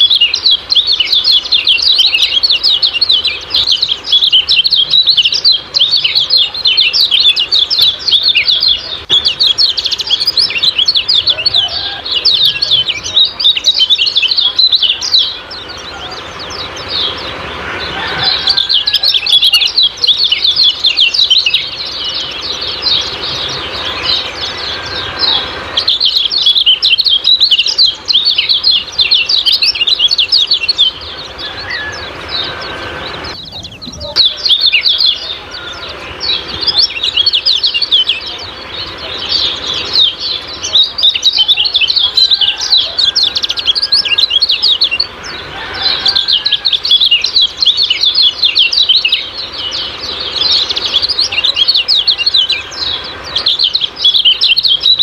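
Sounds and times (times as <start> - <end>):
bird chirping rapidly: 0.0 - 55.0.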